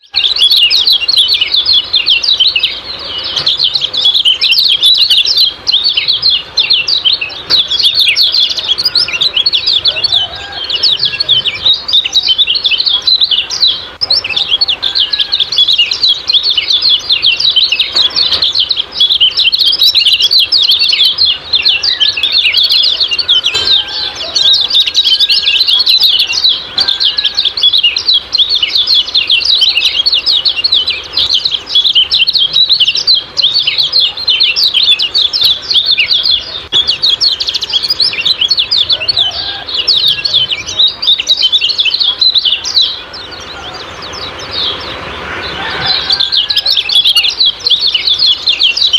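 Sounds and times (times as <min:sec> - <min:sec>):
bird chattering high notes: 0:00.0 - 0:48.9
fainter lower bird calls: 0:00.0 - 0:48.9.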